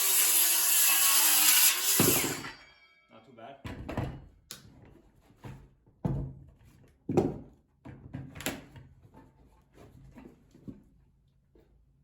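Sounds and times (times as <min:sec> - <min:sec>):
saw cutting: 0:00.0 - 0:03.0.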